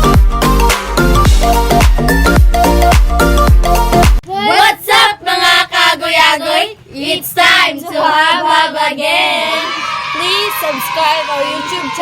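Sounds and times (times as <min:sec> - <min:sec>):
young voice singing unaccompanied: 0:04.2 - 0:09.8.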